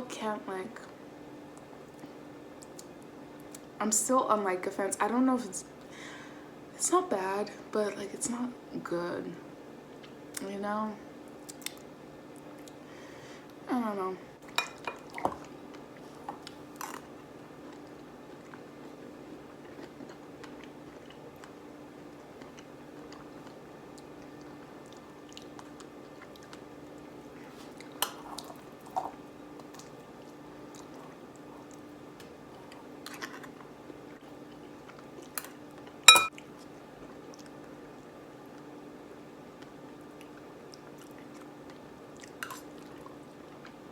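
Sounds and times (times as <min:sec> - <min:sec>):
spoon clinking against bowl: 0:36.1 - 0:36.3.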